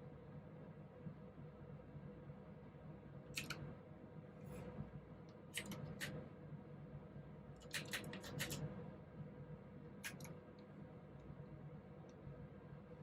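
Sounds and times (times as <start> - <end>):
faint steady hum: 0.0 - 13.0
mechanical keyboard typing: 7.6 - 8.6.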